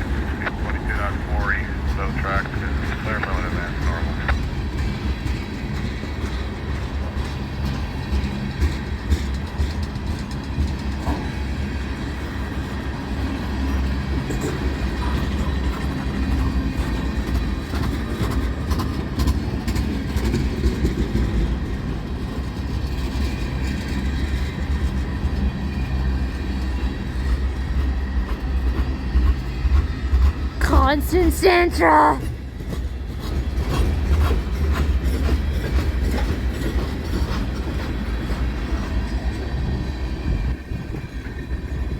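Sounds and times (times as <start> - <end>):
train rumbling on rails: 0.0 - 41.9.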